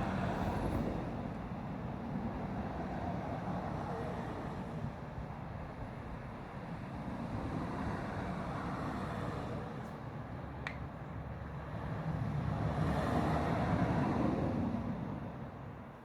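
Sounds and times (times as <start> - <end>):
diesel train passing: 0.0 - 3.0.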